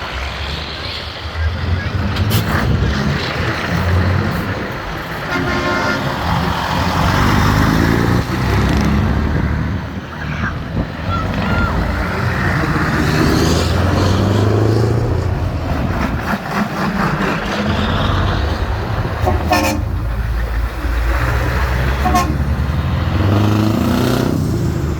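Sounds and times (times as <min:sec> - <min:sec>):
truck engines pulling away: 0:00.0 - 0:24.9.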